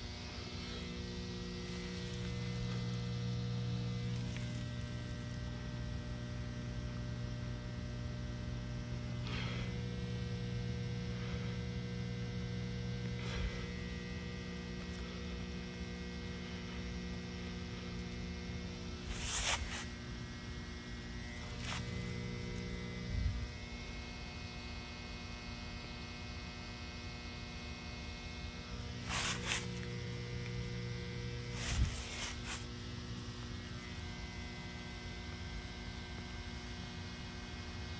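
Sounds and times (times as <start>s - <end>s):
electrical hum: 0.0s - 37.9s
scuffs or rustles: 1.6s - 3.0s, 4.0s - 4.9s, 19.0s - 20.0s, 21.3s - 22.3s, 29.0s - 29.9s, 31.5s - 32.8s.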